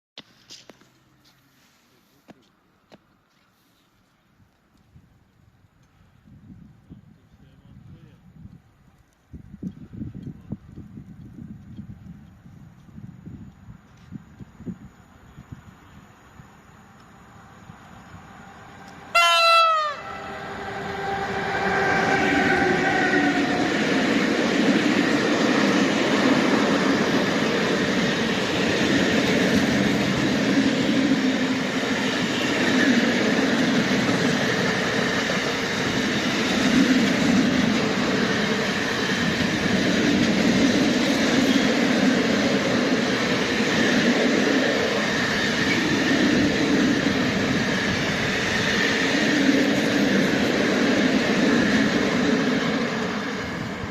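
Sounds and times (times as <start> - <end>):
locomotive horn blast: 19.1 - 23.9
train wagons rumbling and clattering: 20.2 - 53.9.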